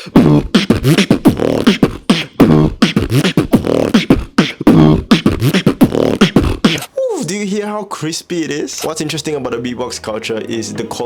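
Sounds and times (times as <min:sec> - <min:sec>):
beatboxing: 0:00.0 - 0:07.0, 0:08.7 - 0:09.1.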